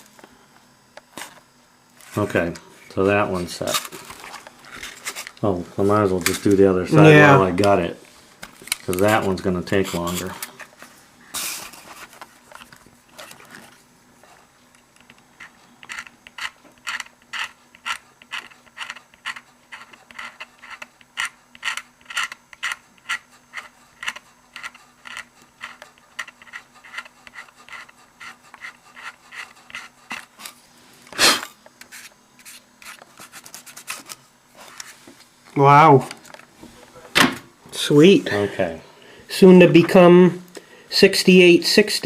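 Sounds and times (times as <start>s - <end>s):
hand rubbing on plastic: 23.0s - 31.0s.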